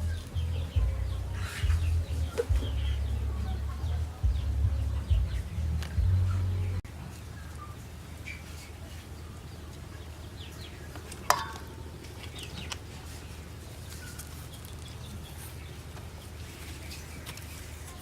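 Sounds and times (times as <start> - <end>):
steady low hum: 0.0 - 7.0
birds chirping faintly: 0.0 - 18.0.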